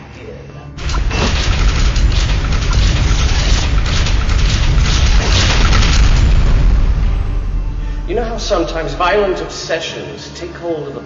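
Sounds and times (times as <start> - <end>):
loud deep rumbling: 0.8 - 9.6.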